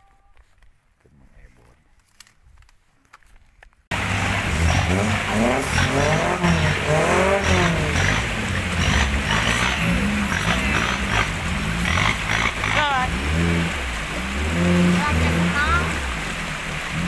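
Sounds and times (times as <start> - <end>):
tyre and drivetrain noise: 2.0 - 17.0
engine revving hard: 3.9 - 17.0.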